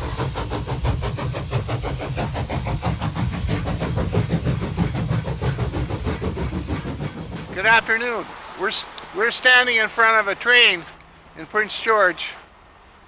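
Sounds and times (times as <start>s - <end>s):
train rumbling and clattering: 0.0s - 8.1s.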